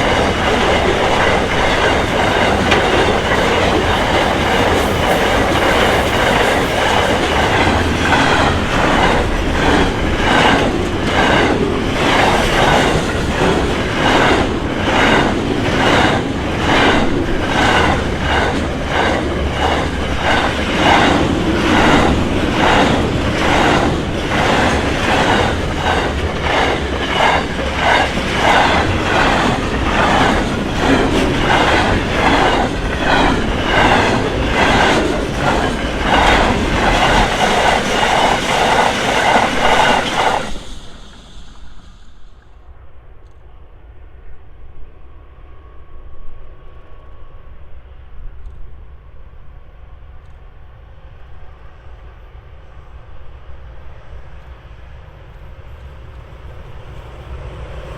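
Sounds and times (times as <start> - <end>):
train wheels clicking: 0.0 - 43.5
train low rumble: 0.0 - 57.9.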